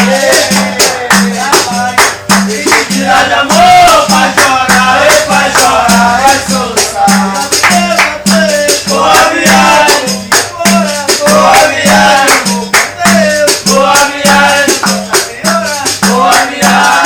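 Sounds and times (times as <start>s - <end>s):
rattling shaker: 0.0s - 17.0s.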